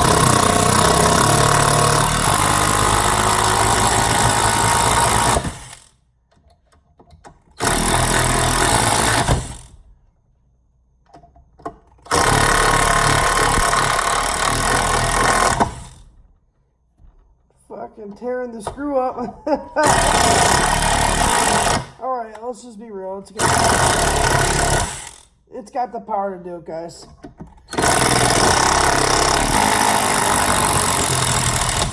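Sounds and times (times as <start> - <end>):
impact driver hammering screw: 0.0 - 5.9, 7.6 - 9.8, 12.0 - 16.1, 19.8 - 22.0, 23.4 - 25.3, 27.7 - 31.9.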